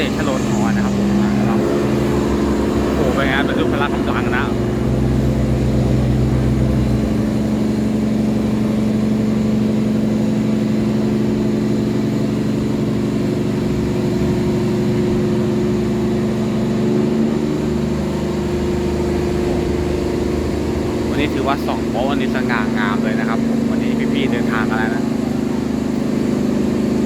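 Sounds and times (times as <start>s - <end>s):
diesel engine drone: 0.0s - 27.0s.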